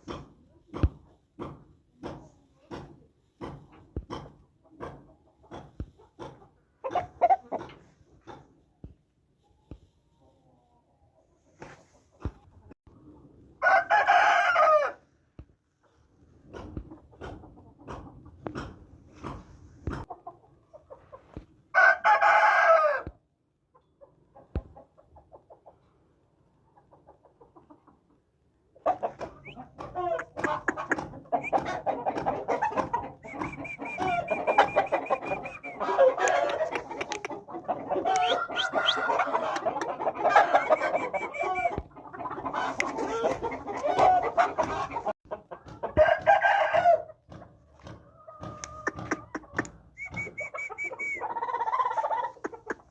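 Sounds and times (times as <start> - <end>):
chickens clucking: 0.0 - 13.6, 15.6 - 21.7, 23.5 - 52.9
rooster crowing: 13.6 - 15.0, 21.8 - 23.1, 38.0 - 39.6, 46.0 - 47.1.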